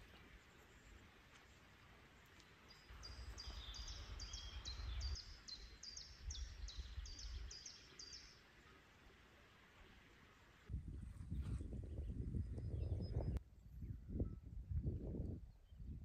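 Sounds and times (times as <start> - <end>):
small bird singing: 2.4 - 8.4.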